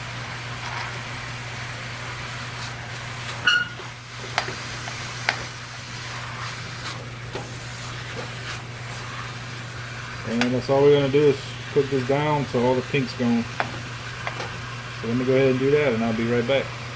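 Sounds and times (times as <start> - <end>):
meat sizzling in a pot: 0.0 - 16.9.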